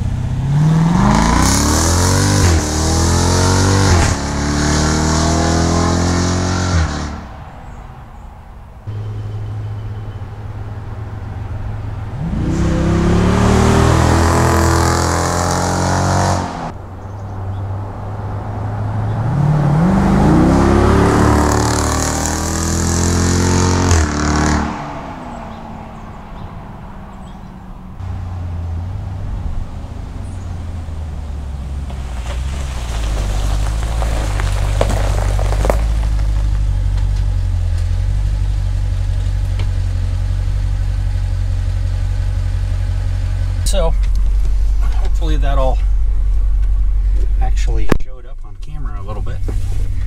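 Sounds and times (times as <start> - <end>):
car engine accelerating: 0.0 - 8.0, 8.9 - 50.0
car engine idle rumble: 25.4 - 50.0.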